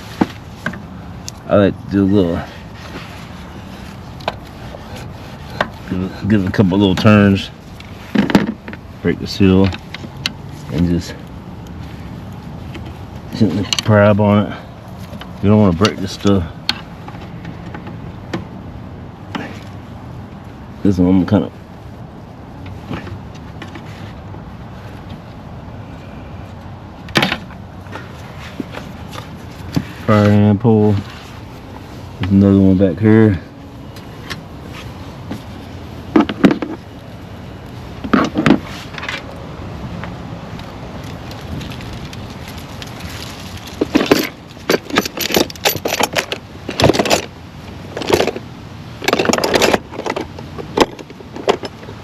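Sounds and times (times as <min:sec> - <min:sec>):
steady background hum: 0:00.0 - 0:52.0
tools clicking and rattling: 0:41.0 - 0:52.0.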